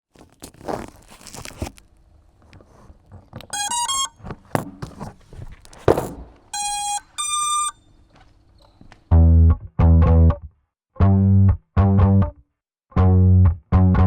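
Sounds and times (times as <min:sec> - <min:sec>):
drone motor startup beeps: 0:03.5 - 0:04.2, 0:06.5 - 0:07.8.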